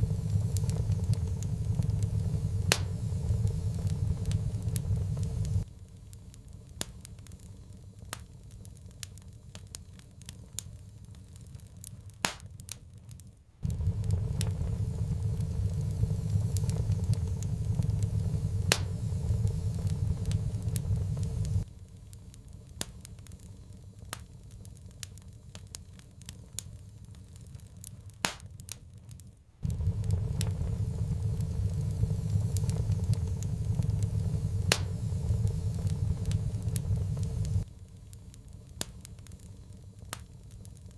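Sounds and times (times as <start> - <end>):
low rumble: 0.0 - 5.7, 13.6 - 21.7, 29.6 - 37.8
wood fire crackling and popping: 0.0 - 40.9.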